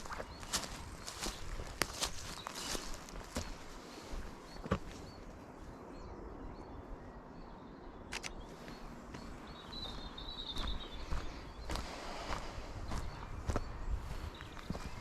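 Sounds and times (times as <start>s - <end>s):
footsteps on a path: 0.0s - 5.4s, 8.5s - 15.0s
faint outdoor background noise: 0.0s - 15.0s.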